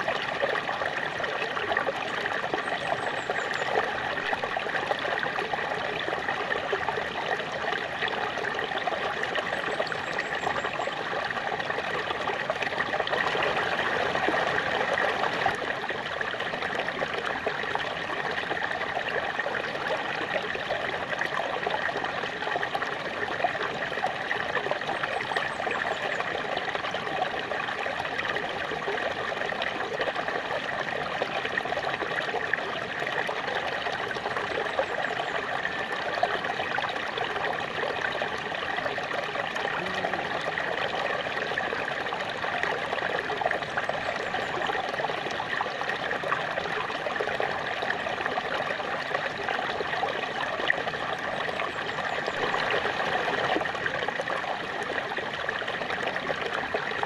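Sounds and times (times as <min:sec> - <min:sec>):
small waterfall splashing: 0:00.0 - 0:57.0.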